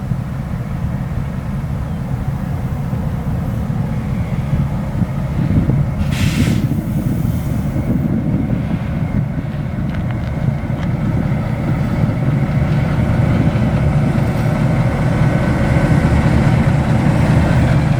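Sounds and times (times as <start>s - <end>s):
locomotive engine rumbling: 0.0s - 17.9s
brief hiss: 6.0s - 7.8s.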